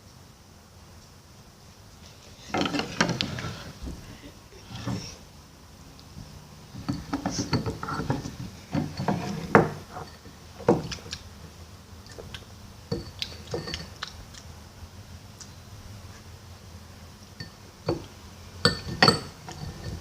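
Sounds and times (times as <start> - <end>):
objects being handled knocks: 6.7 - 11.1.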